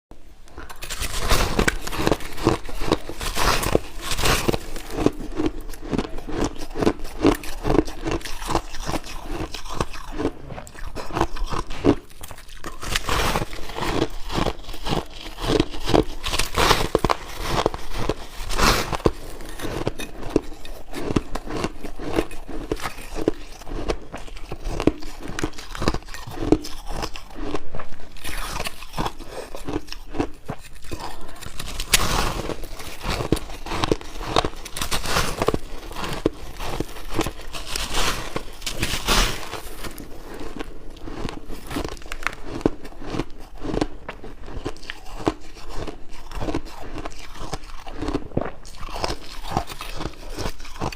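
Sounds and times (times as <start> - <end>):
crunching shaved ice: 0.7 - 50.9.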